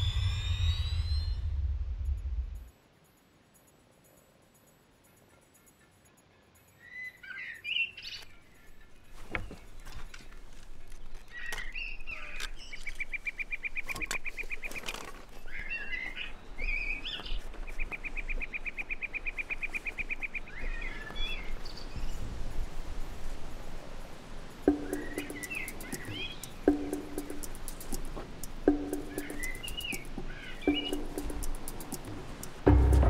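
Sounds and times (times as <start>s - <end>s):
birds chirping: 5.1s - 22.2s, 24.7s - 33.0s
bird trilling: 24.7s - 32.6s
sharp clicks: 24.7s - 32.6s.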